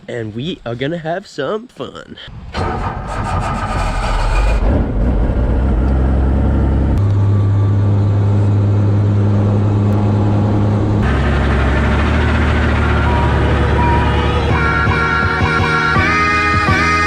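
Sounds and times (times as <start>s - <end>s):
helicopter engine and rotor drone: 7.0s - 15.6s.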